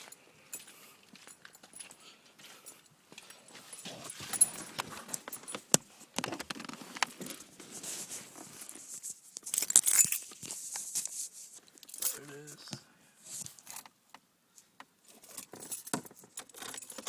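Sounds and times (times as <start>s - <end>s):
clicks and rattles of handling: 3.8s - 7.5s, 8.4s - 12.3s, 14.8s - 17.0s.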